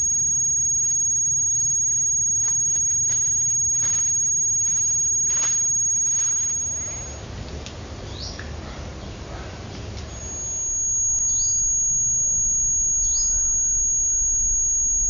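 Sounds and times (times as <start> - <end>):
thin high-pitched tone: 0.0 - 7.2, 10.1 - 15.0
bird chirping: 11.2 - 11.8, 13.0 - 13.6.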